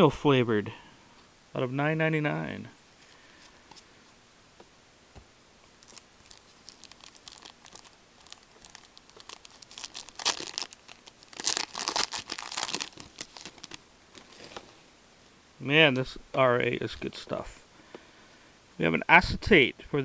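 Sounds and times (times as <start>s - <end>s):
wrapper tearing and crinkling: 5.8s - 14.6s.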